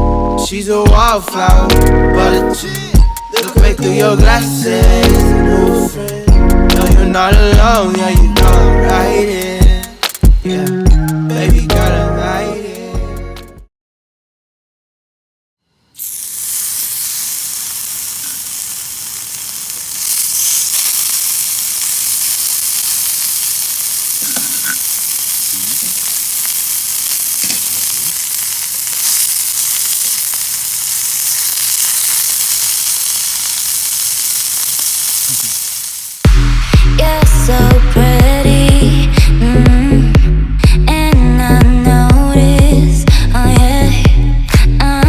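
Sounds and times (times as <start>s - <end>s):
food sizzling in a pan: 0.9s - 10.6s, 15.6s - 37.7s.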